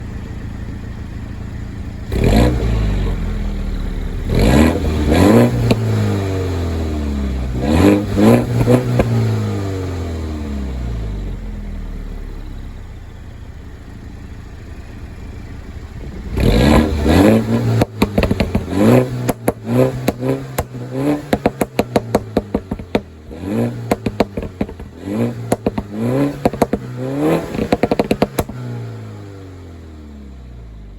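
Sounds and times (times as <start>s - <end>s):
car engine revving: 0.0s - 12.3s, 15.9s - 30.3s
exhaust pops and crackles: 3.3s - 6.0s, 7.8s - 9.3s, 16.0s - 28.7s.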